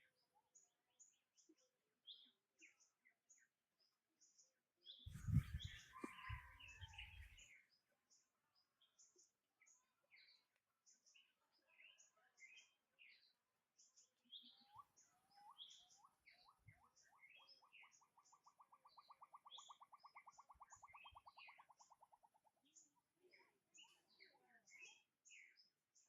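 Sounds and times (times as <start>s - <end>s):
bird trill: 5.1s - 7.4s.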